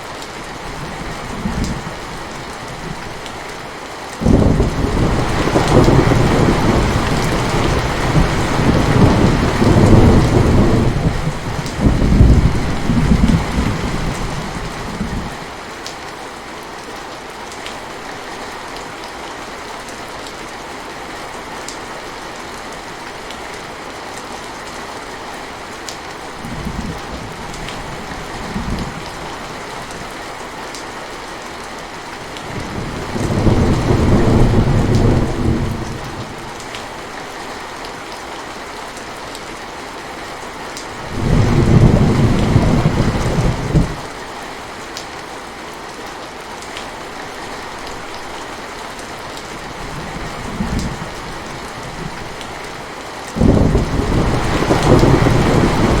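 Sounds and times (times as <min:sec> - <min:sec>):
steady rain: 0:00.0 - 0:56.0
thunder rolling: 0:04.2 - 0:15.3, 0:32.6 - 0:36.2, 0:41.0 - 0:44.1, 0:53.4 - 0:56.0
low thunder rumbles: 0:04.2 - 0:15.4, 0:32.4 - 0:36.4, 0:41.0 - 0:44.1, 0:53.4 - 0:56.0.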